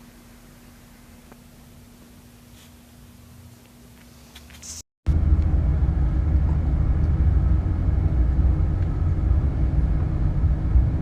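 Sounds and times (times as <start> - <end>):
faint hum: 0.0 - 11.0
low rumble: 5.1 - 11.0.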